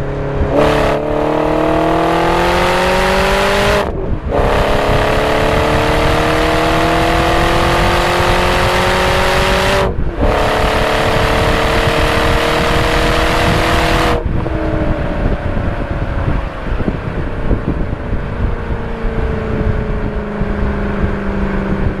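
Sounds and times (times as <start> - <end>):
car engine pulling hard: 0.0 - 22.0
exhaust note as car coasts: 0.0 - 22.0.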